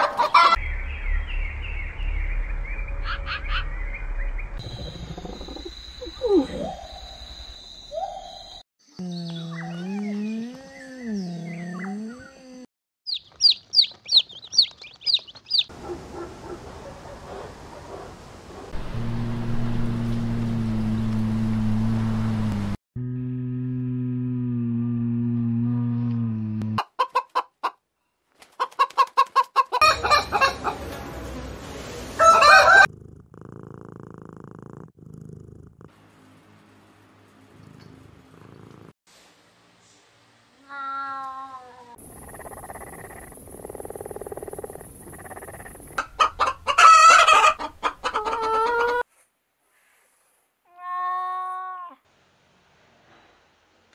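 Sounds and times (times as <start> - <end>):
chickens clucking: 0.0 - 0.6, 28.5 - 31.0, 42.1 - 49.0
chicks peeping: 13.1 - 15.7
chicken squawk: 32.2 - 32.9, 46.0 - 49.0
faint hiss: 49.1 - 50.7.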